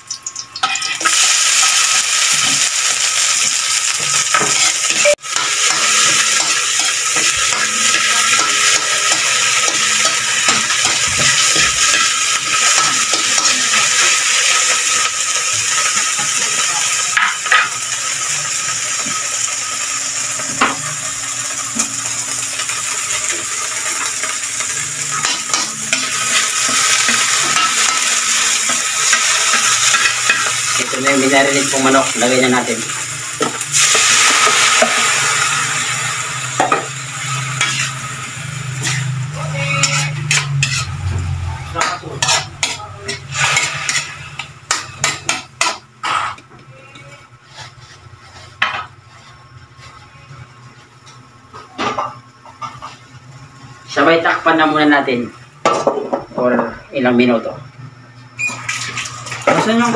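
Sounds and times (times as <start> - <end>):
leaves sizzling in hot oil: 0.0 - 46.3, 58.3 - 59.9.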